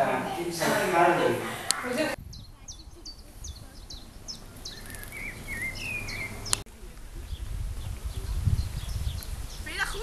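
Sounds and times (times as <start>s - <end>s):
songbirds singing: 2.1s - 10.0s.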